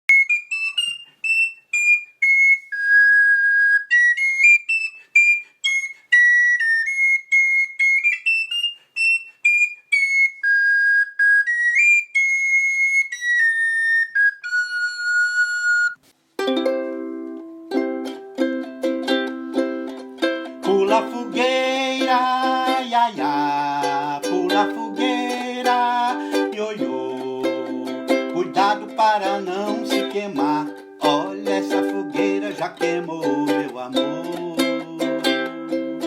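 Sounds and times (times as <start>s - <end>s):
flute-like wind instrument melody: 0.1s - 16.0s, 19.0s - 36.0s
plucked string instrument strumming: 16.4s - 36.0s.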